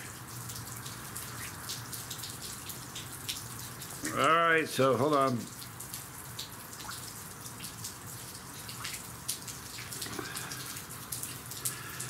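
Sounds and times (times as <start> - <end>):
sharp water drips: 0.0 - 12.0
steady rain falling: 0.0 - 12.0.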